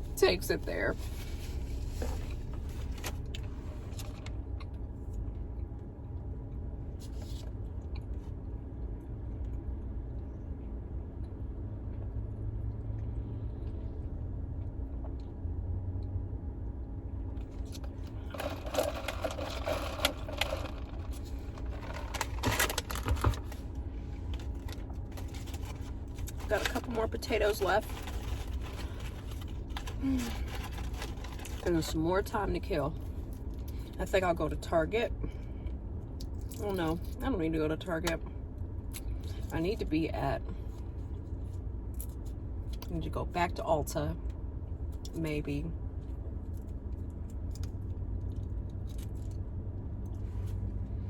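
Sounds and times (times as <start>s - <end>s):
car interior hum: 0.0s - 51.0s
food packaging crinkling: 17.5s - 31.7s.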